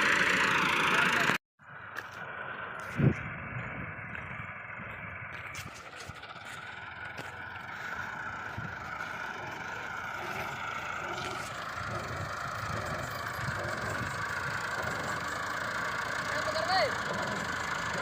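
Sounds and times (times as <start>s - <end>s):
heavy farm machine engine running: 0.0s - 18.0s.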